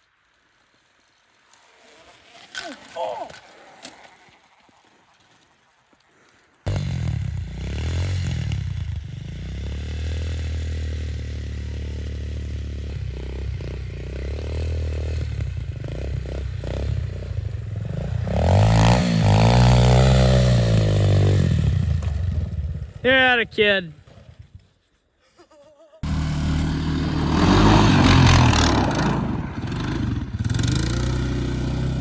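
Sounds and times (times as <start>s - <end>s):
off-road vehicle engine running: 6.7s - 23.2s, 26.0s - 32.0s.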